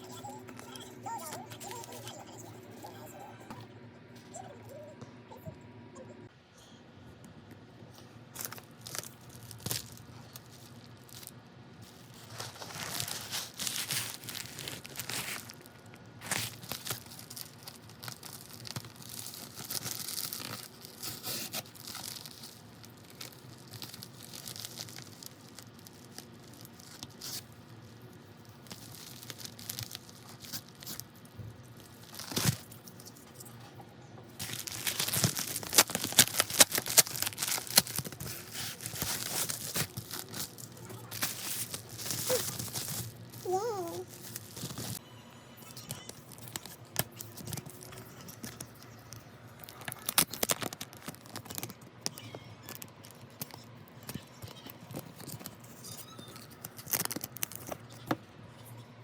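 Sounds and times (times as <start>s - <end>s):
paper and plastic ripping: 8.4s - 27.6s, 28.5s - 31.1s, 31.8s - 33.5s, 34.4s - 45.0s, 45.8s - 58.2s.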